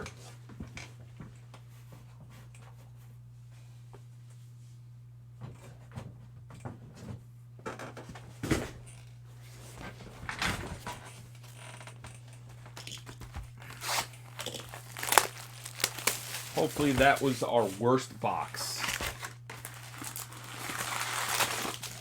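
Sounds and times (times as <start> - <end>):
packaging crinkling and rustling: 12.7 - 22.0
packaging tearing: 13.6 - 22.0.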